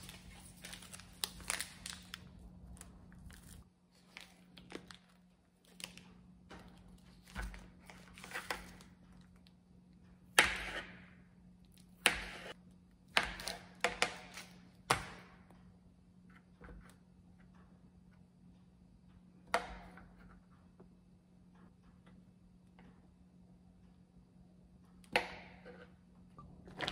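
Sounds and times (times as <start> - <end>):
plastic casing crinkling: 0.0 - 6.0.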